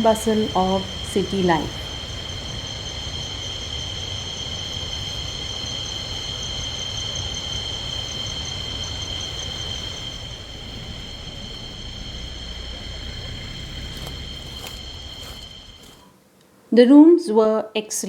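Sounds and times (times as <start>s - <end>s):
insects chorus whining: 0.0s - 16.1s
low even rumble: 7.6s - 16.0s.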